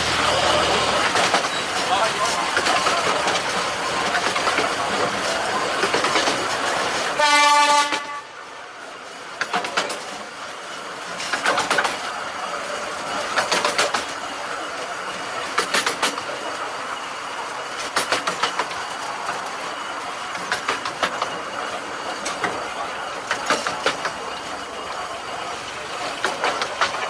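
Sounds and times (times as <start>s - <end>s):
locomotive toot: 0.0s - 2.4s, 7.1s - 8.6s
wheels clicking over rail joints: 0.0s - 27.0s.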